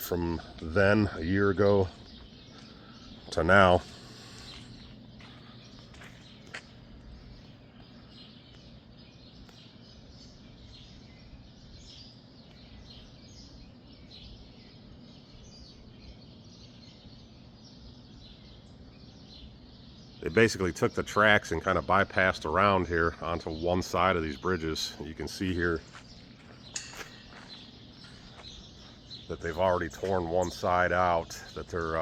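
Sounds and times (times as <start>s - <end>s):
low hum and rumble: 0.0s - 20.2s
small birds chirping: 0.0s - 32.0s.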